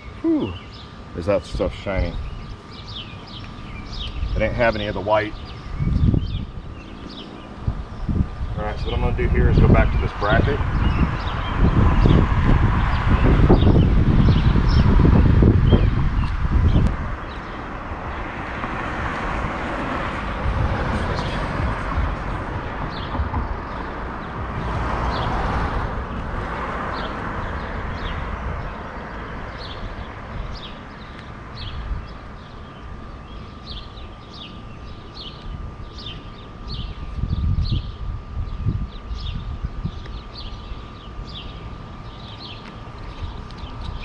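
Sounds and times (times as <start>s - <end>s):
bird chirping: 0.0s - 12.2s, 29.5s - 44.0s
wind rumbling on microphone: 1.5s - 44.0s.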